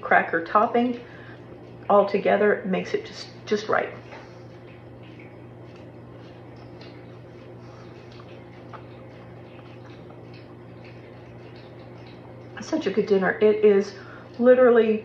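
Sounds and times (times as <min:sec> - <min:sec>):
steady low hum: 0:00.0 - 0:15.0
chewing with little crunches: 0:03.3 - 0:13.1.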